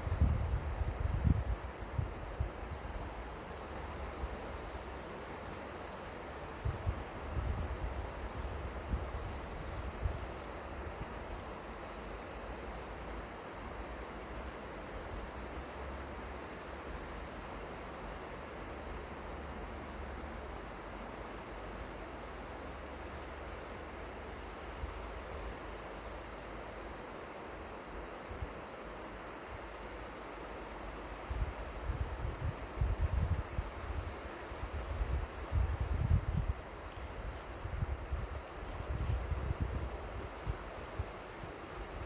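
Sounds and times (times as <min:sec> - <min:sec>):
wind rumble on microphone: 0:00.0 - 0:03.2, 0:06.6 - 0:11.2, 0:31.3 - 0:42.0.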